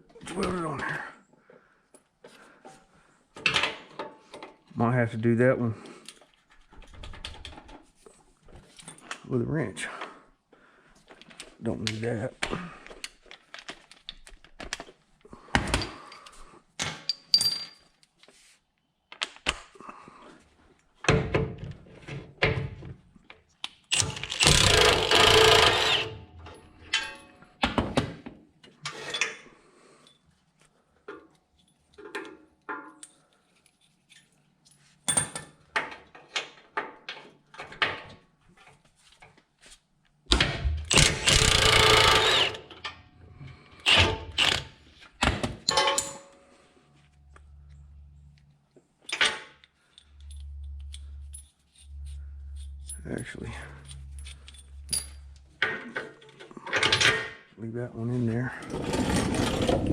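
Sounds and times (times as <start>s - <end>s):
tools clinking on steel: 17.0s - 18.0s, 26.5s - 27.4s, 45.6s - 46.4s
loud rattling bursts: 23.9s - 26.1s, 40.9s - 42.6s.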